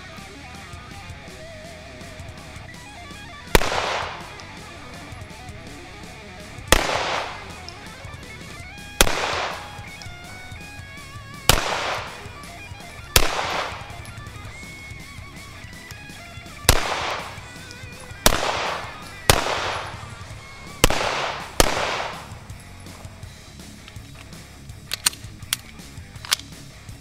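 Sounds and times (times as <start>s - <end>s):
background music with guitar: 0.0s - 27.0s
pistol shots with echo: 1.9s - 22.6s.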